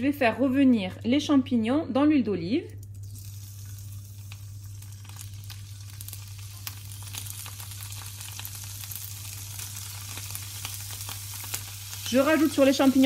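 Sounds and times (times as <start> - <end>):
mushrooms sizzling in oil: 2.8 - 13.0.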